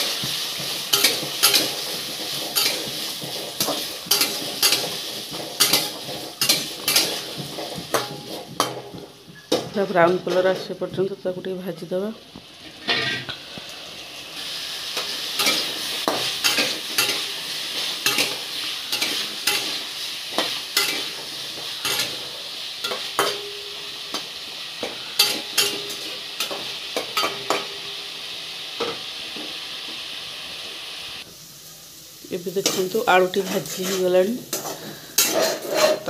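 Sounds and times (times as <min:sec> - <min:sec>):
spatula scraping and knocking pan: 0:00.0 - 0:10.8, 0:12.6 - 0:13.6, 0:15.0 - 0:27.9, 0:32.6 - 0:36.0
potatoes sizzling in hot oil: 0:00.0 - 0:36.0.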